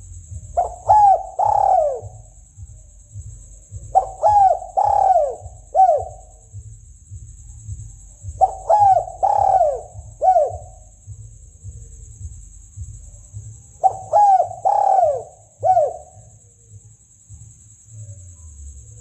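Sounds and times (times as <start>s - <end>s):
dove cooing: 0.0s - 6.6s, 7.6s - 11.8s, 12.8s - 16.3s
steady high-pitched hiss: 0.0s - 19.0s.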